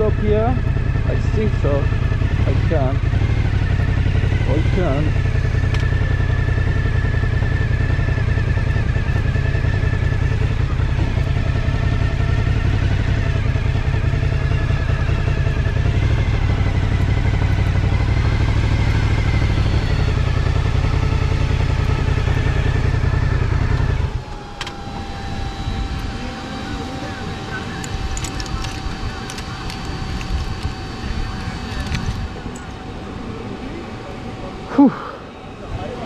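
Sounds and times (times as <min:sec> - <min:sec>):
motorcycle engine idling: 0:00.0 - 0:36.0.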